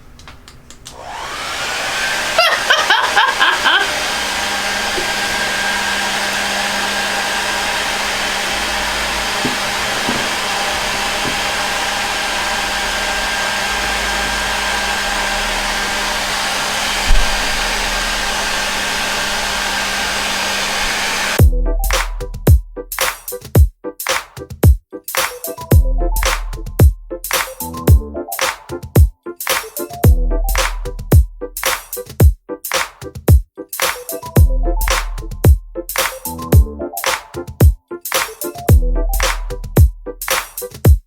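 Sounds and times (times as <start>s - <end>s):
hair dryer blowing: 0.8s - 21.4s
knock: 9.4s - 10.4s, 17.0s - 17.7s.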